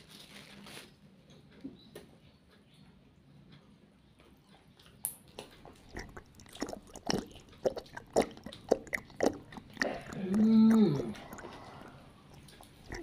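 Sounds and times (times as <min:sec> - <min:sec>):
man chewing and smacking: 0:03.4 - 0:13.0
man humming: 0:10.1 - 0:11.2.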